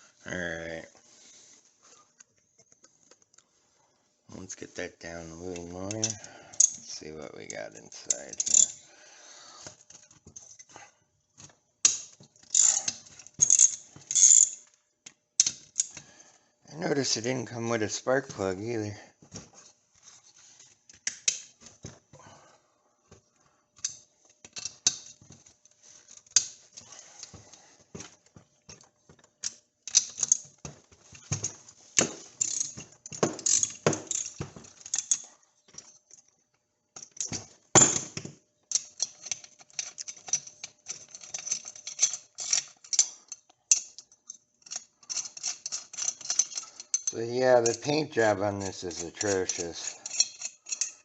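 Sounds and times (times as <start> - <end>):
metallic clicks of hand tools: 11.8 - 16.0, 48.6 - 51.0
knocks on metal parts: 33.1 - 34.6.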